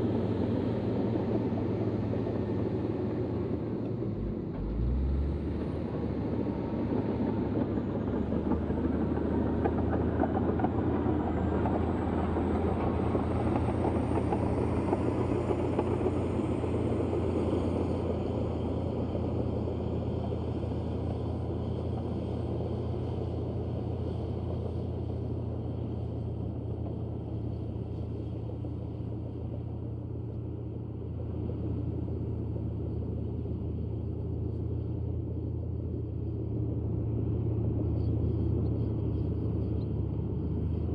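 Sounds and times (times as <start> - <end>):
bulldozer diesel engine rumbling: 0.1 - 40.9.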